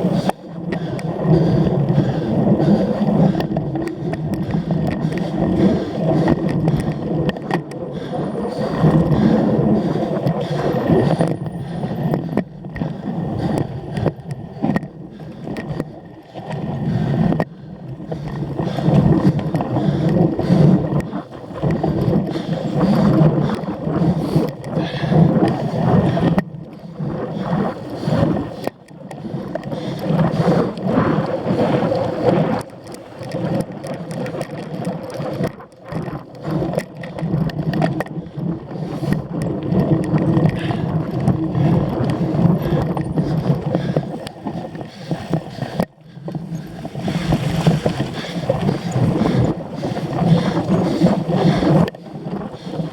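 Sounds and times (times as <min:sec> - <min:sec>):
wind buffeting microphone: 0:00.0 - 0:52.9
bike rattles and knocks: 0:00.1 - 0:26.6, 0:27.9 - 0:52.9
tyres rumbling on dirt: 0:38.8 - 0:52.9.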